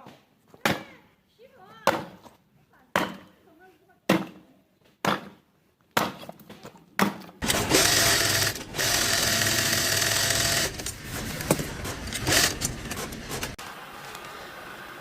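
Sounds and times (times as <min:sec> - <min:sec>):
small power tool running: 0:07.4 - 0:13.6.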